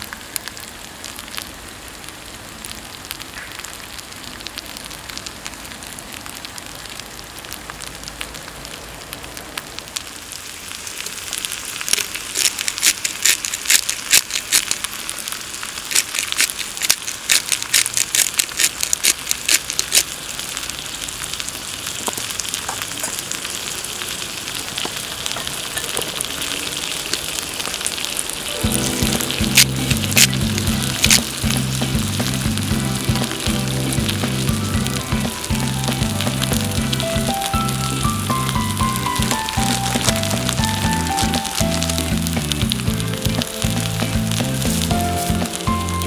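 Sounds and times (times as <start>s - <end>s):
food sizzling in a pan: 0.0s - 46.0s
oil spitting and popping: 11.8s - 20.3s, 28.8s - 45.7s.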